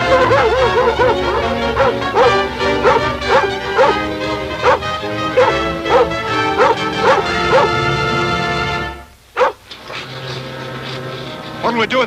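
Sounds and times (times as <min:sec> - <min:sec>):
dog barking: 0:00.0 - 0:07.8, 0:09.4 - 0:09.6
film score music: 0:00.0 - 0:12.0.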